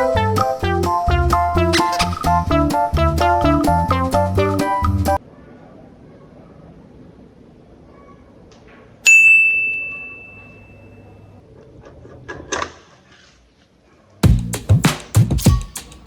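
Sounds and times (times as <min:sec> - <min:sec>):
background music beat: 0:00.0 - 0:05.2, 0:14.2 - 0:16.0
bright bell ding: 0:09.1 - 0:11.0.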